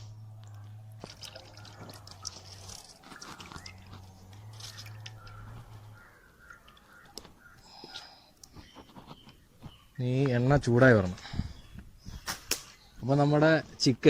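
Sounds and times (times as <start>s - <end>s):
oil trickling into frying pan: 1.0s - 4.0s.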